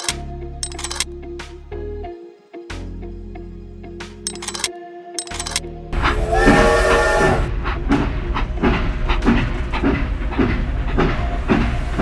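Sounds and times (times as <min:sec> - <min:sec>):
toy train chuffing: 0:00.0 - 0:01.0, 0:04.3 - 0:07.2
toy train whistle: 0:06.1 - 0:07.5.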